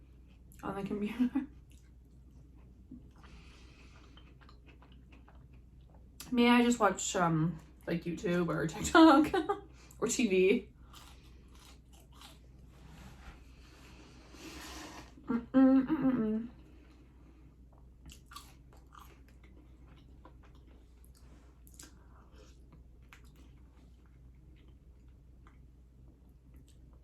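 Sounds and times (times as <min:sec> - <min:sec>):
chewing and biting food: 0:01.6 - 0:06.2, 0:10.8 - 0:12.6, 0:17.7 - 0:25.7
person humming: 0:15.3 - 0:16.5.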